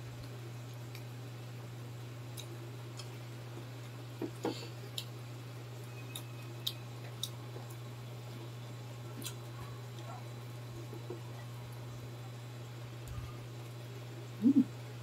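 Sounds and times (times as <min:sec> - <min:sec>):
steady low hum: 0:00.0 - 0:15.0
chewing: 0:06.1 - 0:07.8.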